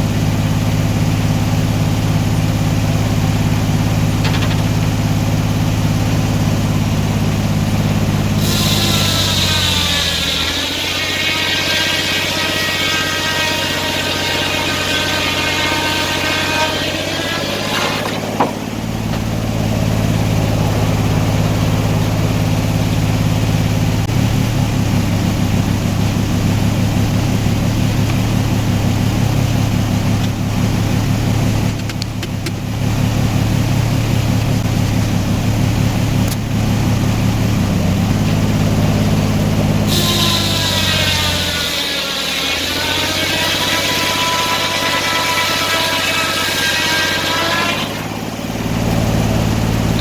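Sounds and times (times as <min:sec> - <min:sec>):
high whine: 0:00.0 - 0:40.5
sawmill engine running: 0:00.0 - 0:50.0
saw blade cutting log: 0:07.9 - 0:24.2, 0:38.1 - 0:50.0.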